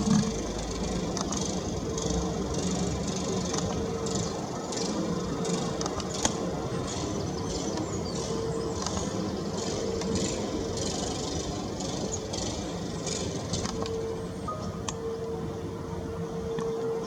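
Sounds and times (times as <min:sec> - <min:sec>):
distant road traffic rumble: 0:00.0 - 0:16.8
birds chirping: 0:03.8 - 0:13.3.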